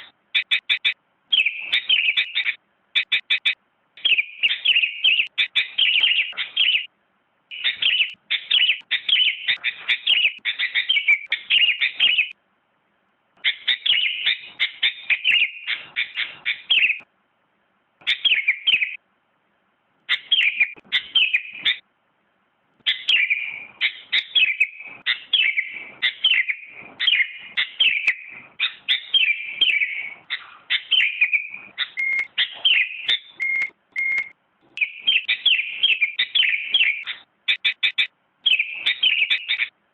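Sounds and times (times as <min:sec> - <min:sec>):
bird chirping: 0:00.0 - 0:06.9, 0:07.5 - 0:12.4, 0:13.4 - 0:17.1, 0:18.0 - 0:19.0, 0:20.0 - 0:21.9, 0:22.8 - 0:39.8
bird whistled notes: 0:00.4 - 0:06.9, 0:07.5 - 0:12.3, 0:20.1 - 0:21.8, 0:22.9 - 0:39.7.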